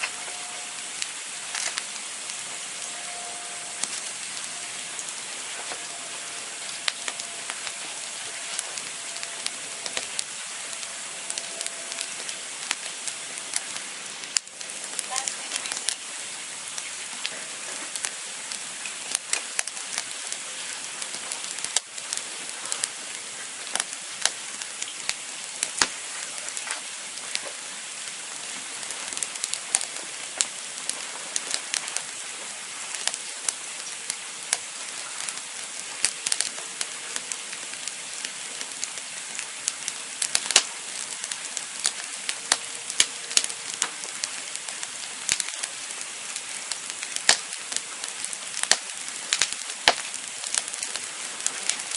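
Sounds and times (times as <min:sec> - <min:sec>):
wood campfire crackling: 0:00.0 - 0:51.9.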